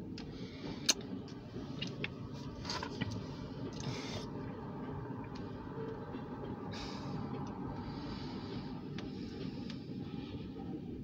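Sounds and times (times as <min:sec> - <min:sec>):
freight train rumbling past: 0:03.2 - 0:11.0.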